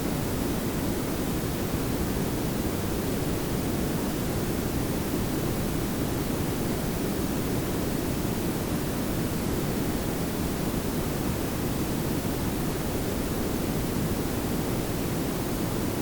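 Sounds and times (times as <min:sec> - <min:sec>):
steady noise hiss with low rumble: 0:00.0 - 0:16.0.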